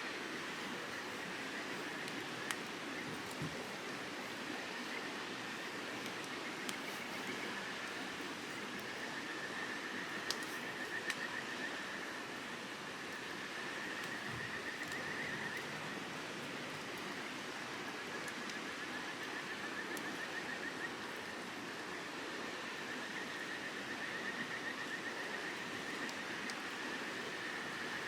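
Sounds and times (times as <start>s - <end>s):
wood fire crackling: 0.0s - 9.0s, 10.1s - 11.2s, 13.1s - 18.6s, 25.4s - 28.0s.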